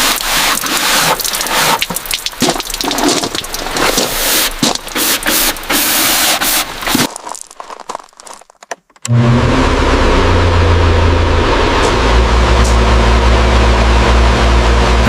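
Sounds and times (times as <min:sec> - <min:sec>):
crackling rain-like noise: 0:00.0 - 0:05.8
low engine hum: 0:09.1 - 0:15.0.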